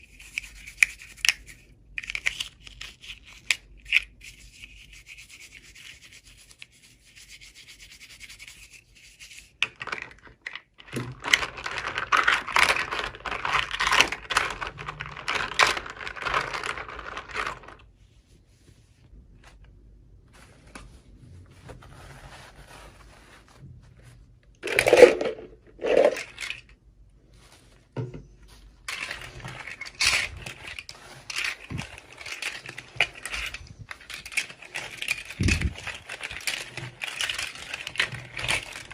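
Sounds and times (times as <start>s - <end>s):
toy packaging rustling: 9.6s - 18.0s, 24.6s - 38.9s.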